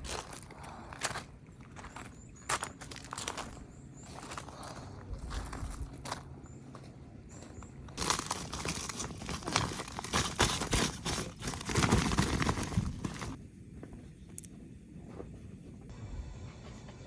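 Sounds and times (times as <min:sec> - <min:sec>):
crinkling and rustling: 0:08.0 - 0:13.4.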